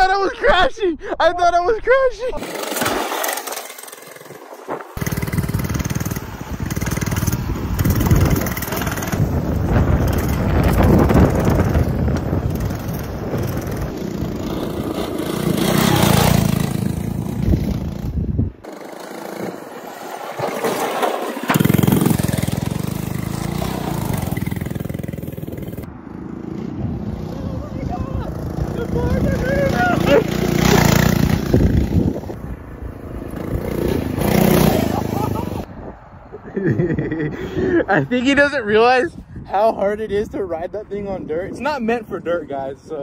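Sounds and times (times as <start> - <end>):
mini bike engine revving: 2.4 - 32.4, 33.2 - 35.7.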